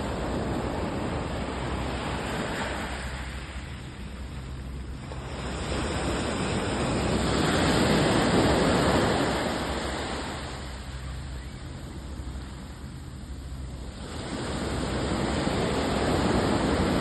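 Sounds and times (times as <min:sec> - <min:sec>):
sea waves breaking on shore: 0:00.0 - 0:17.0.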